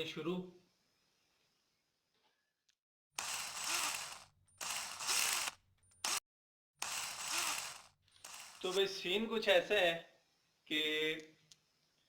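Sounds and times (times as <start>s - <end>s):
noisy rattling bursts: 3.2s - 6.2s, 6.8s - 8.8s.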